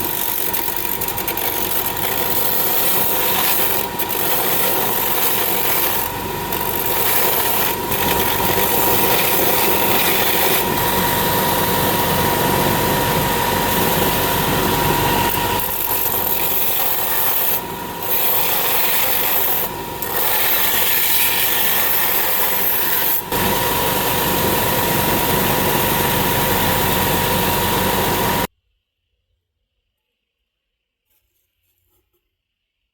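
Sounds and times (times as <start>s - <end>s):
motor whine: 0.0s - 19.0s, 22.5s - 28.5s
power tool rasping metal: 0.0s - 28.5s.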